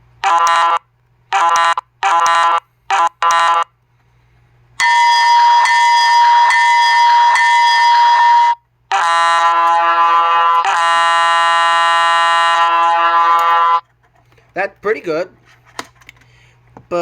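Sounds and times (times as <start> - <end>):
multi-note air horn blast: 0.2 - 3.7, 4.8 - 13.8
locomotive bell ringing: 4.8 - 8.6.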